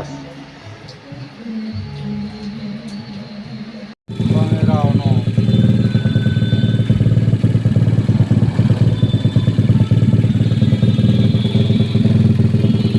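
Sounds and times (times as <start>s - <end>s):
motorcycle engine running: 4.1s - 12.9s.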